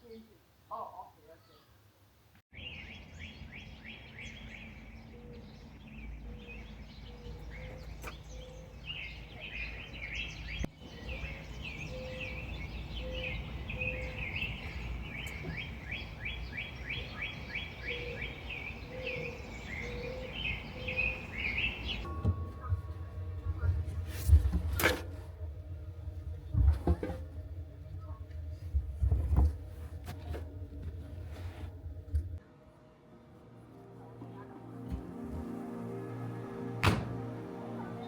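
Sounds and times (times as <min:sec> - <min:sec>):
songbirds chirping and singing: 0:02.5 - 0:22.8
low background rumble: 0:06.0 - 0:32.4.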